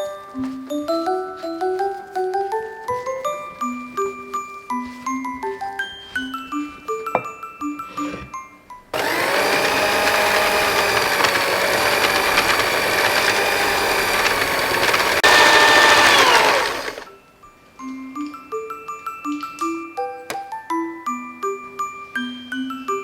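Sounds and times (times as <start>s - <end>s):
electric mixer motor whining: 9.0s - 17.1s.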